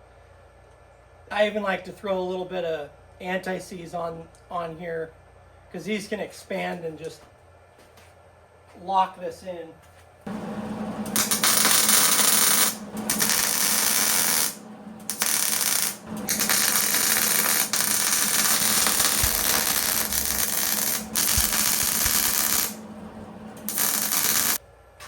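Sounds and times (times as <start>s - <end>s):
arc welder crackling: 10.3s - 24.6s
steady low hum: 10.3s - 24.6s.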